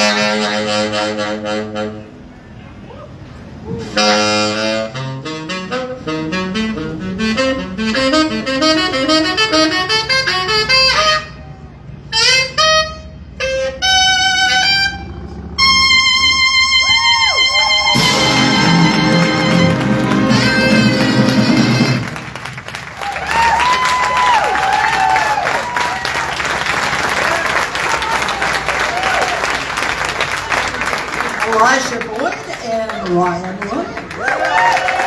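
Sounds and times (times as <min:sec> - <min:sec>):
jazz big band playing: 0:00.0 - 0:02.3, 0:03.8 - 0:11.5, 0:12.1 - 0:22.9.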